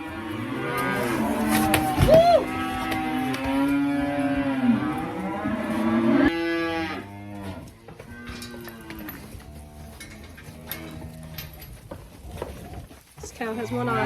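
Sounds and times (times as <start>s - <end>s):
cows mooing: 0.0s - 11.8s, 13.5s - 14.0s.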